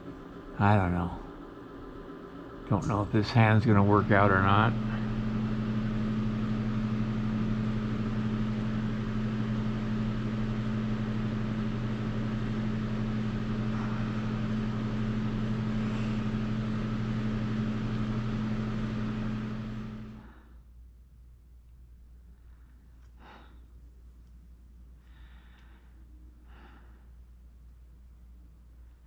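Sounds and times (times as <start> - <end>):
heater fan humming and whirring: 0.0 - 29.0.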